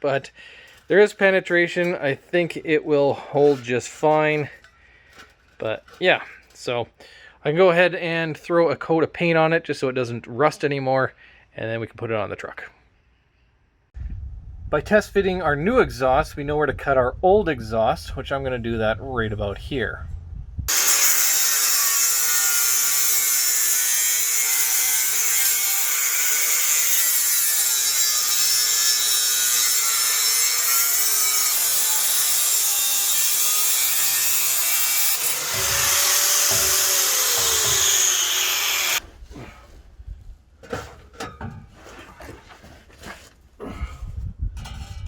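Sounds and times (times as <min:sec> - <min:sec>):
power tool cutting steel pipe: 0:20.7 - 0:39.0.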